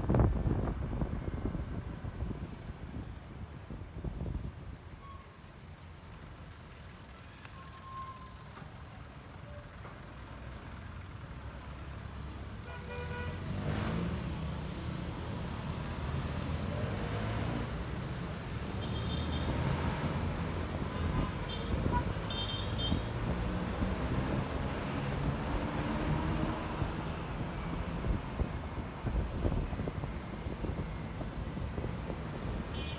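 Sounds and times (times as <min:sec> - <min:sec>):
wind on microphone: 0:00.0 - 0:04.6, 0:22.9 - 0:32.8
scooter engine and road rumble: 0:13.1 - 0:32.9
vehicle horn toots: 0:20.9 - 0:23.2.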